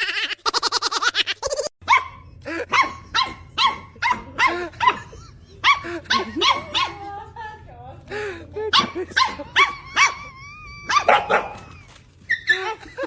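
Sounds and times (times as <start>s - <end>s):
dog barking: 1.9s - 7.0s, 8.7s - 10.2s, 10.9s - 11.6s.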